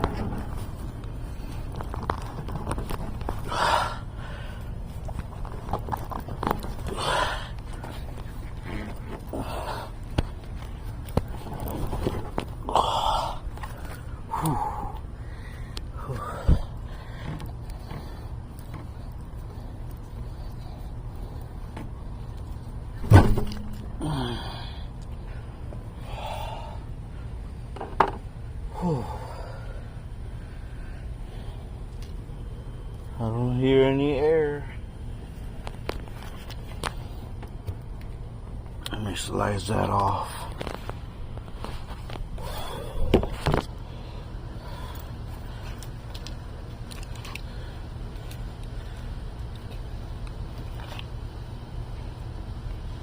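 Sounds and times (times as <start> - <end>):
vehicle engine rumbling: 0.0 - 53.0
breathy grunts of effort: 6.8 - 7.6, 12.6 - 13.5, 14.1 - 17.2, 23.9 - 25.0, 28.7 - 29.9.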